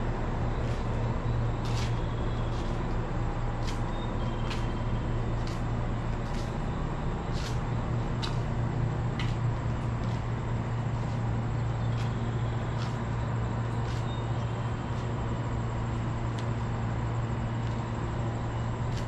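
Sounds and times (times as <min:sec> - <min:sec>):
electric train hum: 0:00.0 - 0:19.0.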